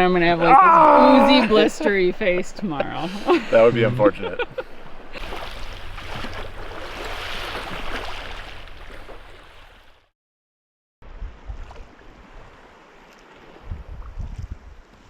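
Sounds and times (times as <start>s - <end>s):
lapping water: 0.4s - 2.0s, 2.9s - 10.0s
water splashing at shoreline: 3.0s - 10.1s, 11.1s - 15.0s
wind on microphone: 13.6s - 15.0s.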